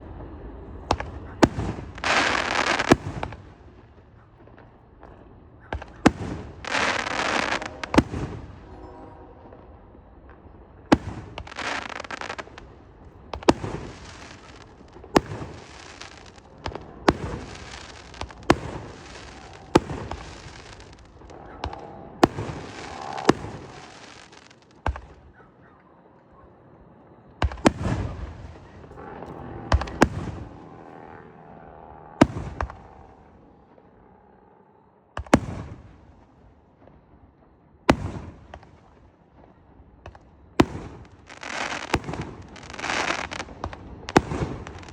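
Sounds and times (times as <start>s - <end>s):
firework bangs: 0.0s - 25.4s, 27.4s - 31.1s, 32.2s - 33.4s, 35.2s - 37.0s, 37.8s - 44.9s
firework hissing: 1.8s - 3.0s, 6.2s - 8.3s, 11.3s - 12.6s, 13.4s - 16.5s, 17.1s - 21.3s, 22.2s - 24.7s, 41.3s - 44.9s.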